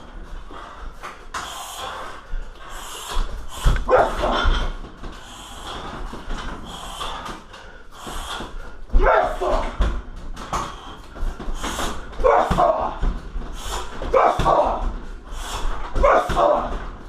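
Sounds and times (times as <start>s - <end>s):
punches thumping heavy bag: 8.9s - 15.0s, 15.7s - 17.0s.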